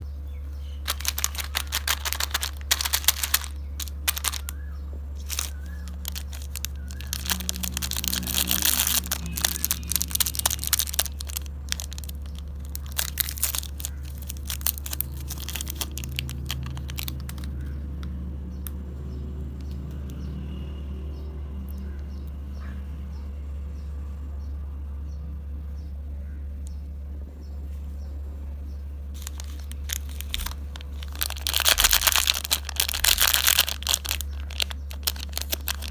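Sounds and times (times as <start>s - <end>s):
steady low hum: 0.0s - 35.9s
plastic wrappers crinkling: 0.8s - 18.1s, 29.1s - 35.9s.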